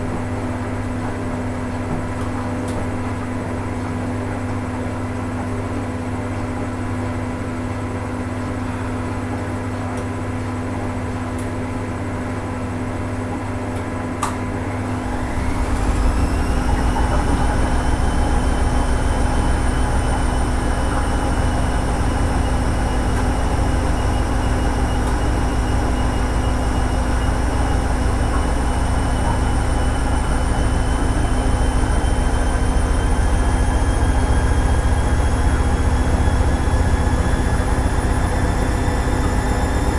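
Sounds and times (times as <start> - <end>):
washing machine humming: 0.0 - 39.9
washing machine drum spinning: 14.4 - 39.9.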